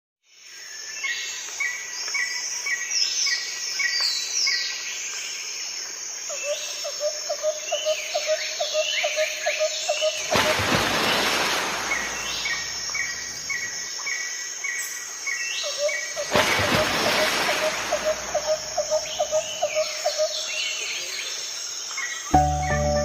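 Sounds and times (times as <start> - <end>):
songbirds singing and chirping: 17.3 - 21.0
repeated low bird note: 22.3 - 23.0.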